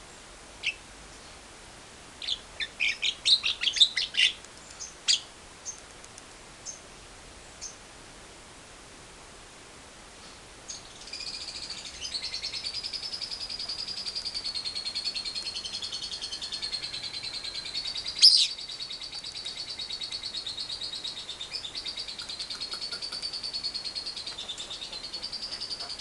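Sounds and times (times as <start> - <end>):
lovebird fast trill: 10.7 - 26.0.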